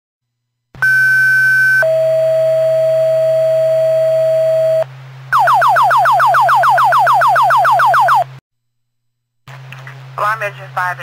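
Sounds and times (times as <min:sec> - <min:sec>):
falling-pitch alert tone: 0:05.4 - 0:08.3
two-tone radio page: 0:10.2 - 0:11.0.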